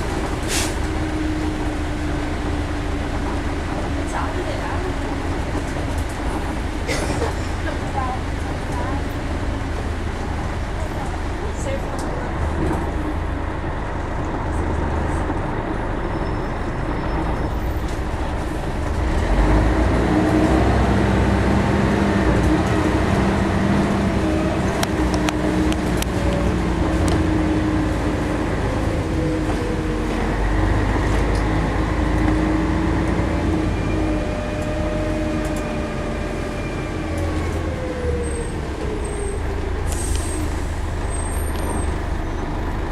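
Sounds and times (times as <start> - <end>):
bus diesel engine: 0.0 - 42.9.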